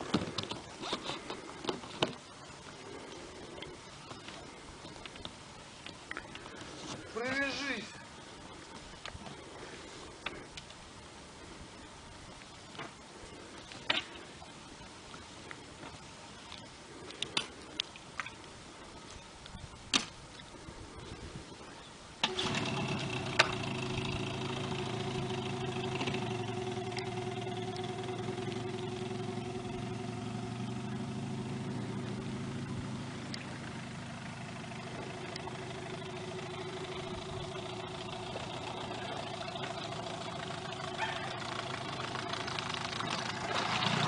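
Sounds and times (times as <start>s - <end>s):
outboard motor running: 22.2s - 44.0s.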